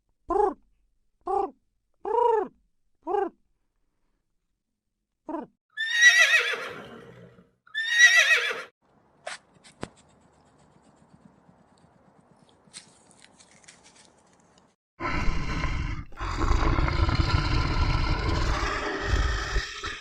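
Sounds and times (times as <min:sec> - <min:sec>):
horse whinnying: 0:05.8 - 0:08.7.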